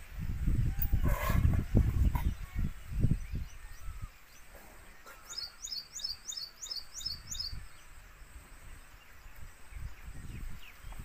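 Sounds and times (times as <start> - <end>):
small bird calling: 0.7 - 8.2.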